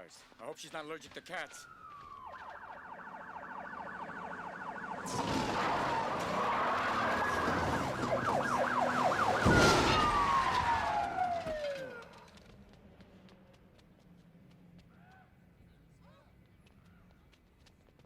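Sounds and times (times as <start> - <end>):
emergency vehicle siren: 1.4 - 12.7.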